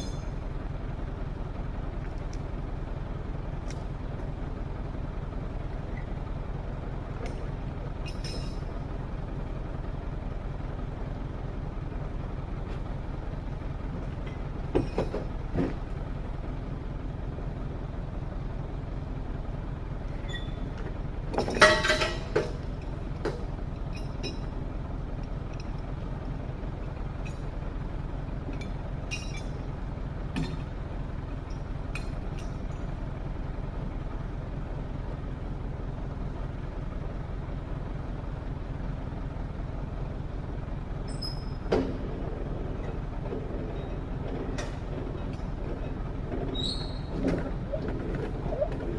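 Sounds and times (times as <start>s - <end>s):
heavy engine low rumble: 0.0s - 48.9s
metallic clanks and knocks: 21.3s - 22.6s.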